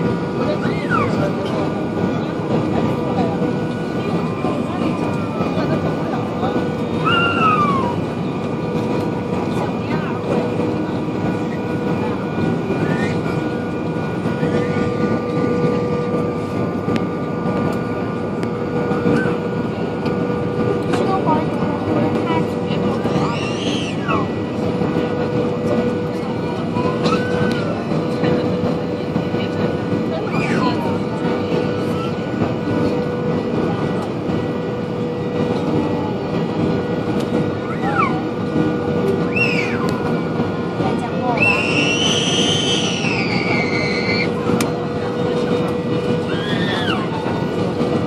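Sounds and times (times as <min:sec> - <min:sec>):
airliner cabin engine roar: 0:00.0 - 0:48.0.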